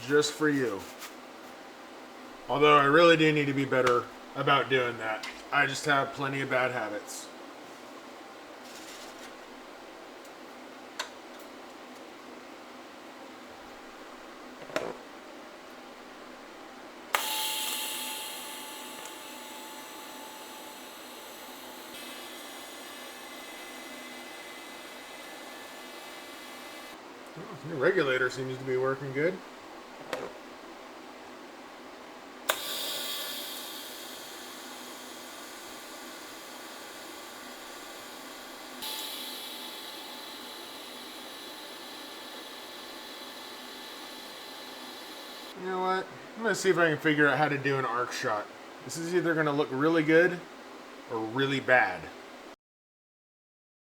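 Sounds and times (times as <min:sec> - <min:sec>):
gas valve click: 0:17.1 - 0:20.2, 0:32.5 - 0:38.0
welding arc click: 0:17.1 - 0:27.0, 0:32.5 - 0:45.5
gas hissing through regulator: 0:17.2 - 0:27.0, 0:32.5 - 0:45.6.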